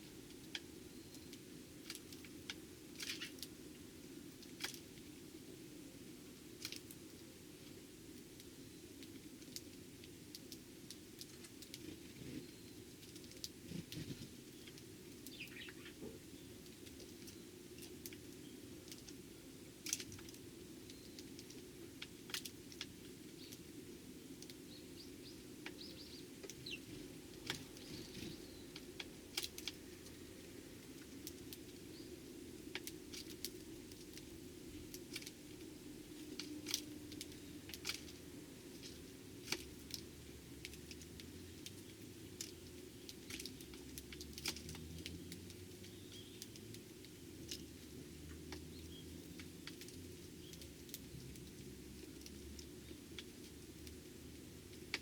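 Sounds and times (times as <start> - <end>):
sparrows chirping faintly: 0.0 - 1.5, 11.8 - 19.8, 20.4 - 21.7, 23.2 - 33.8, 34.7 - 39.4, 44.7 - 51.0, 52.0 - 53.4
beaks tapping: 25.7 - 29.8.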